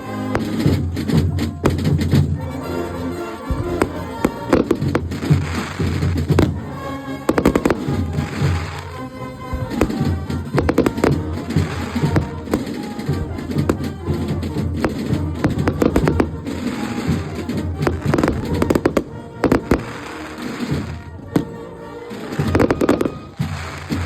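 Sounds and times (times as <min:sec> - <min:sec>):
carnival band music: 0:00.0 - 0:24.0
firework crackle: 0:03.6 - 0:06.6, 0:07.3 - 0:21.5, 0:22.1 - 0:24.0.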